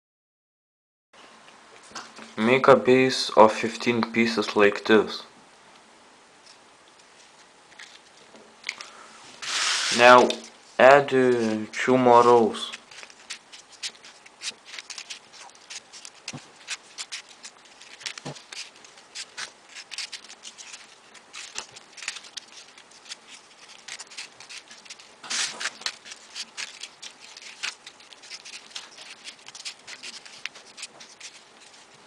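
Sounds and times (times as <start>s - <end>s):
paper rustling and clicking: 7.4s - 10.6s, 12.3s - 32.0s.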